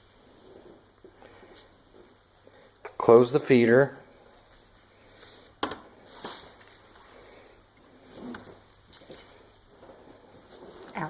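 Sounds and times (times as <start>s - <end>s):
faint metal clinks: 8.4s - 9.6s.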